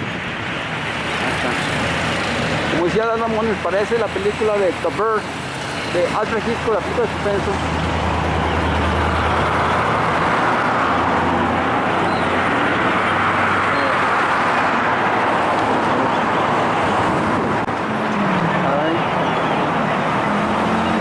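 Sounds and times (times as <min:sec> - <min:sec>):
city traffic noise: 0:00.0 - 0:21.0
vehicle engine idling: 0:02.0 - 0:14.2.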